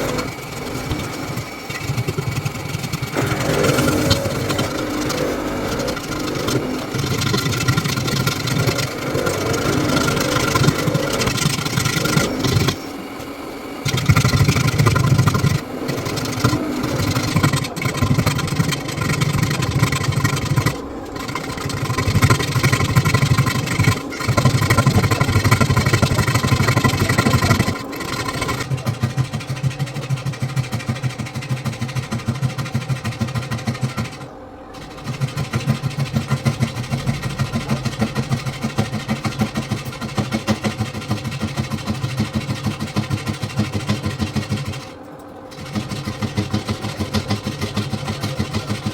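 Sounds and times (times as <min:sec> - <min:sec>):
power tool motor running: 0:00.0 - 0:48.9.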